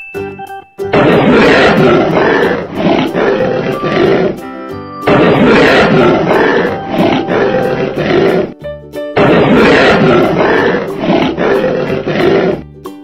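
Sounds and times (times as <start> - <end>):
light music: 0.0 - 1.6, 2.6 - 9.6
lion roaring: 0.9 - 4.5, 5.1 - 8.6, 9.2 - 12.7.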